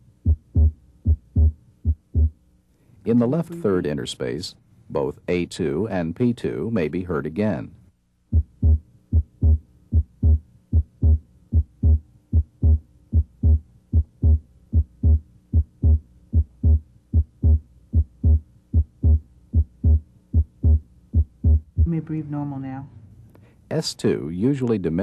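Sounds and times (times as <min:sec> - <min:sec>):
heartbeat through stethoscope: 0:00.2 - 0:02.4, 0:08.3 - 0:22.0.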